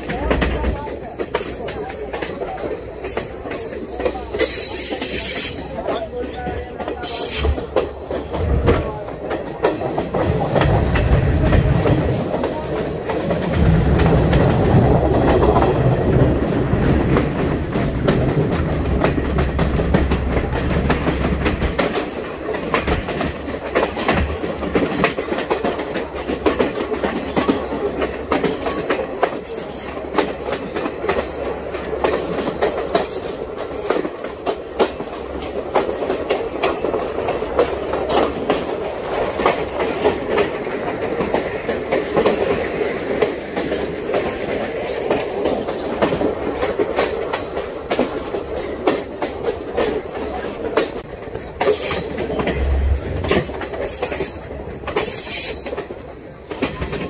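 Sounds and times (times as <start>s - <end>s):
train wheels rolling on rails: 0.0s - 57.0s
wheels clicking over rails: 0.0s - 57.0s
deep rumble: 52.0s - 54.2s.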